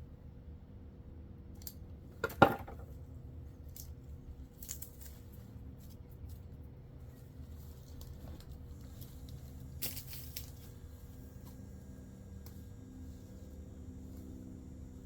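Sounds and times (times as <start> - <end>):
light clicks and scrapes: 4.6 - 11.6.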